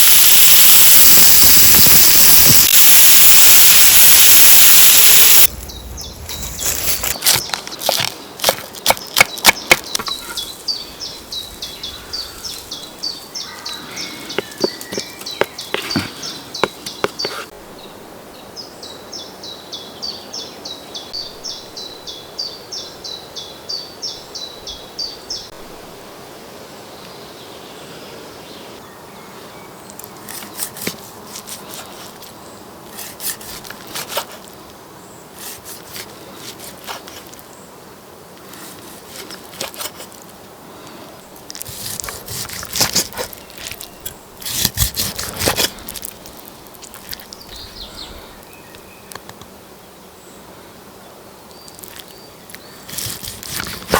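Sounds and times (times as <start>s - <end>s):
bird chirping: 2.8s - 7.9s, 9.0s - 17.4s.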